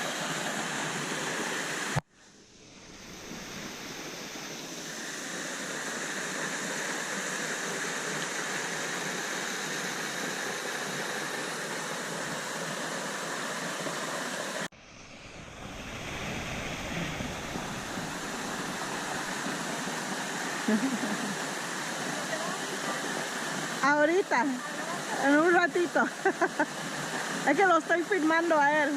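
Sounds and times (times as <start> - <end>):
waterfall rushing: 0.0 - 2.0, 15.4 - 28.9.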